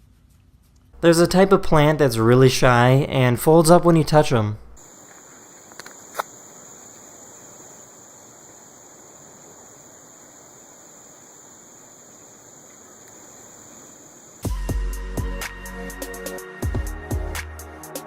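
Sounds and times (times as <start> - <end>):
steady high-pitched hiss: 1.0 - 18.0
faint clicks: 12.6 - 13.8.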